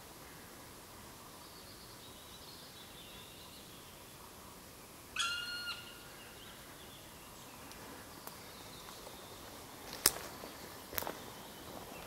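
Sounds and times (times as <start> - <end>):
faint birdsong: 0.0 - 12.0
loud bird call: 5.2 - 6.4.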